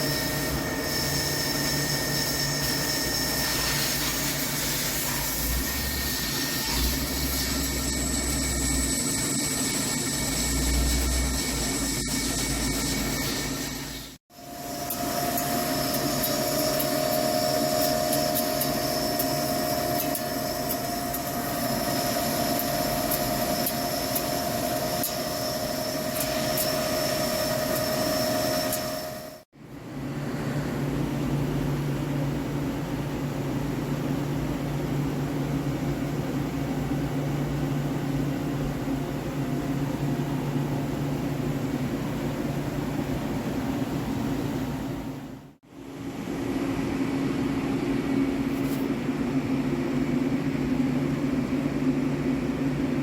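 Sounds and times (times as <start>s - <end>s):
lathe machining hum: 0.0s - 32.6s.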